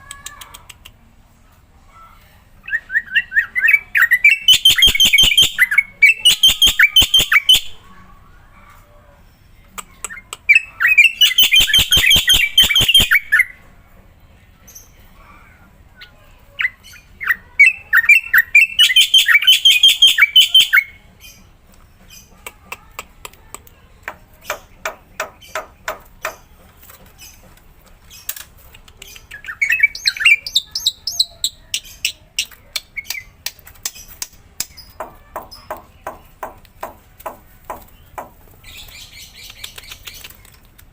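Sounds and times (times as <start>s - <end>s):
bird chirps: 2.7s - 8.2s, 9.2s - 13.6s
bird sharp clicks: 31.7s - 35.0s, 38.9s - 40.8s.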